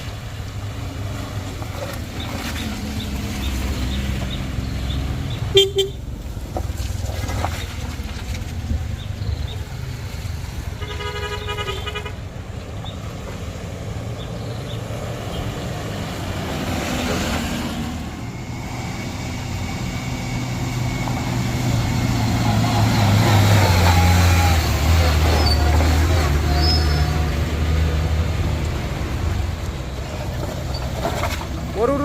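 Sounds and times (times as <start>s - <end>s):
heavy vehicle engine: 0.0s - 32.0s
vehicle horn: 5.5s - 6.0s, 10.8s - 12.2s.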